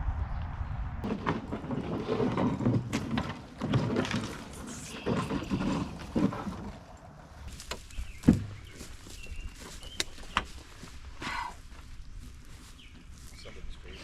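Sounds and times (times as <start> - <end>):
knocks scrapes and rustling: 1.0 - 11.0.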